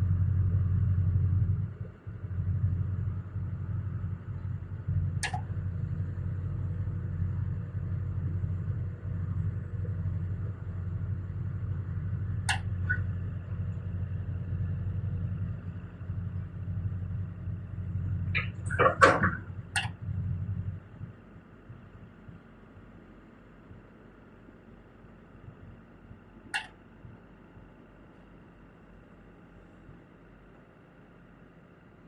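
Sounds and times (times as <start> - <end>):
excavator diesel engine humming: 0.0 - 32.0.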